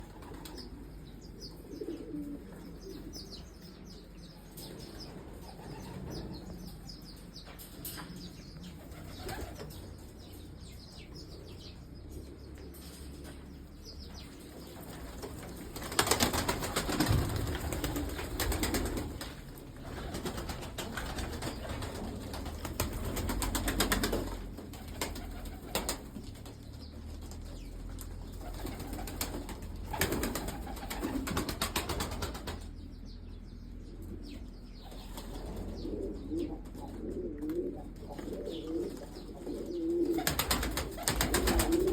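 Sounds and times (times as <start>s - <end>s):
pigeons cooing: 0.0s - 41.9s
wings flapping: 8.8s - 9.8s, 14.8s - 32.7s, 40.0s - 41.9s.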